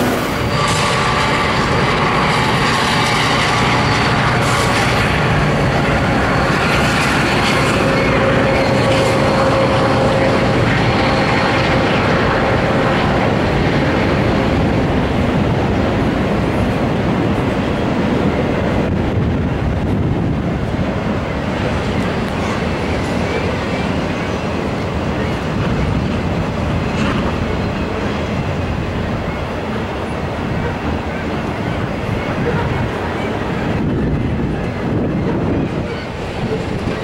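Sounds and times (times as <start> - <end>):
diesel locomotive engines running: 0.0 - 37.0
steel wheels rumbling on rails: 0.0 - 37.0.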